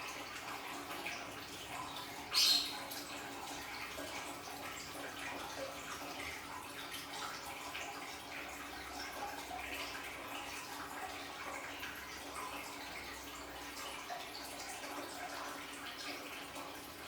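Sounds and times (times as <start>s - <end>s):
water splashing and trickling: 0.0s - 17.0s.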